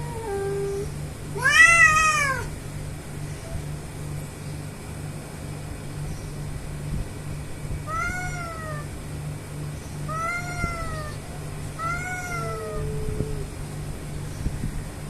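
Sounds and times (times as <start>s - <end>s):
cat yowling: 0.0s - 2.5s, 7.9s - 8.9s, 10.1s - 11.2s, 11.8s - 13.5s
steady low hum: 0.0s - 15.0s.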